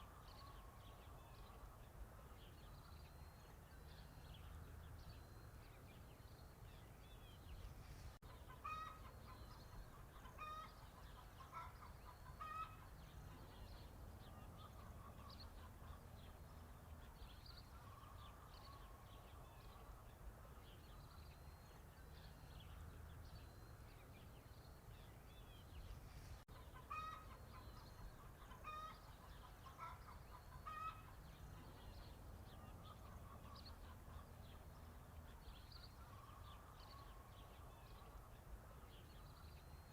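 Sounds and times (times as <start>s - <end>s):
low farmyard background: 0.0s - 39.9s
chickens clucking: 8.2s - 13.0s, 26.5s - 32.1s.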